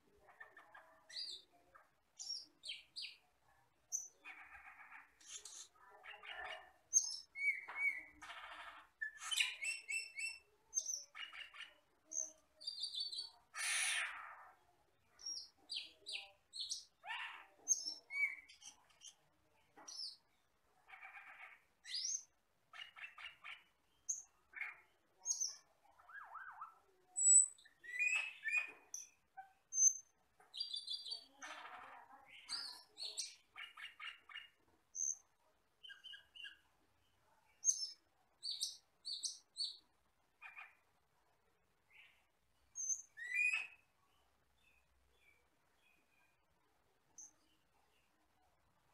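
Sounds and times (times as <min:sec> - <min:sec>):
bird singing whistles and chirps: 0:27.2 - 0:28.7, 0:42.8 - 0:43.8.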